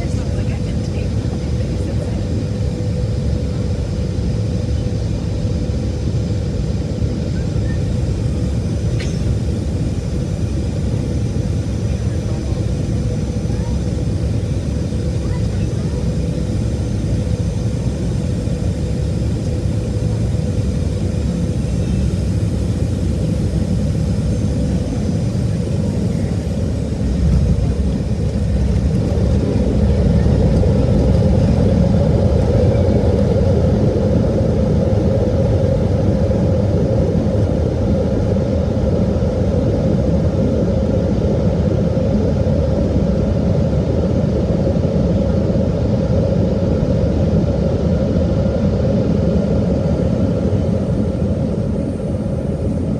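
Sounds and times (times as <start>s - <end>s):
aircraft cabin engine rumble: 0.0s - 52.9s.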